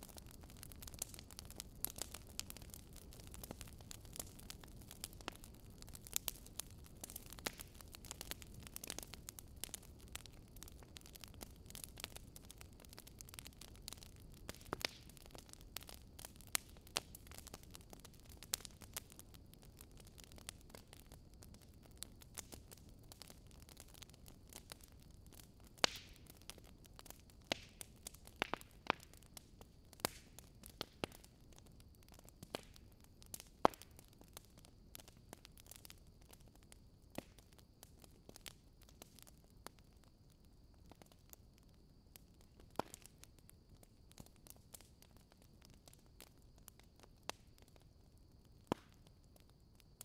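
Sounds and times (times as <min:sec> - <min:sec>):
fire hissing: 0:00.0 - 0:31.5
wood fire crackling: 0:00.0 - 0:50.0.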